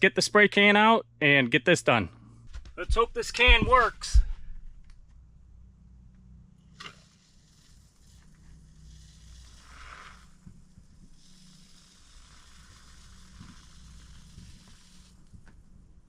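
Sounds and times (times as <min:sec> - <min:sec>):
low steady hum: 0:00.0 - 0:16.0
spray foam can hissing: 0:06.8 - 0:15.4.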